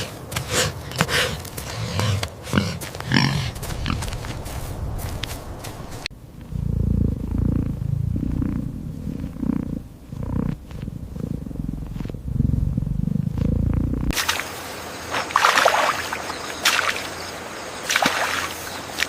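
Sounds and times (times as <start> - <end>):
animal pulsing rumble: 0.0 - 14.2
splashing water: 14.2 - 19.0.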